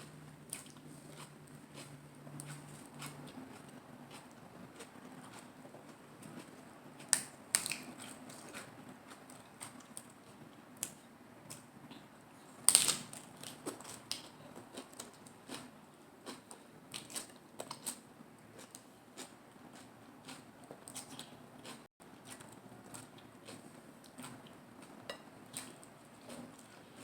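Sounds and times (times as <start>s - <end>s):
crisp chewing crunches: 6.3s - 10.4s.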